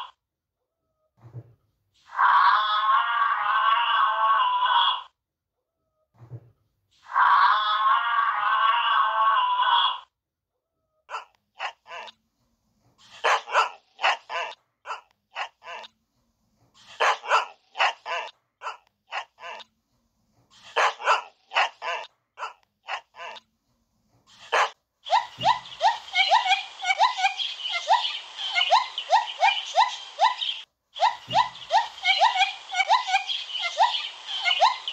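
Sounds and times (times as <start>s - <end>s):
dog barking: 11.1s - 12.1s, 13.0s - 15.9s, 16.8s - 19.6s, 20.6s - 23.4s, 24.3s - 26.0s
squeaky monkey calls: 13.0s - 15.9s, 24.3s - 34.9s.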